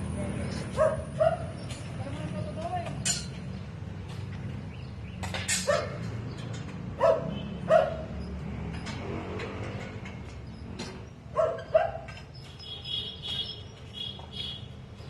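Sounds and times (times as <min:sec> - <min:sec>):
dog barking: 0:00.7 - 0:01.5, 0:05.6 - 0:06.1, 0:07.0 - 0:08.1, 0:11.3 - 0:12.2.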